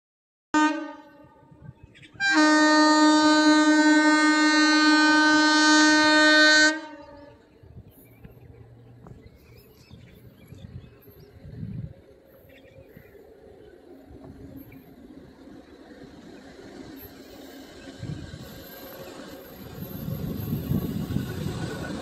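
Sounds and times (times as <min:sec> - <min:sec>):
locomotive horn blast: 0:00.6 - 0:01.6, 0:02.2 - 0:07.4.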